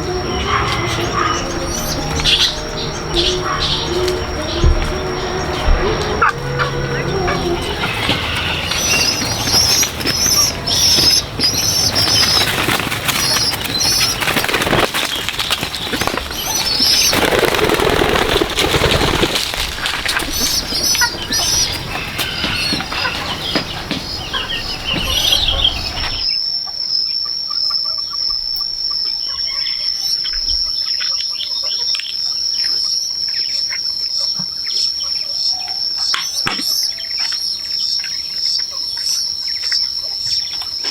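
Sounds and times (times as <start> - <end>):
dense rustling: 0.0 - 26.3
wings flapping: 0.0 - 26.3
birds chirping: 0.0 - 26.4
high insect drone: 0.0 - 30.8.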